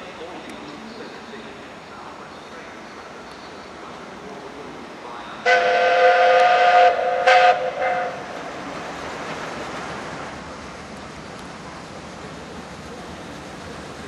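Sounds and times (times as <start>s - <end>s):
passing train rumble: 0.0s - 14.0s
steam locomotive whistle: 5.4s - 8.4s.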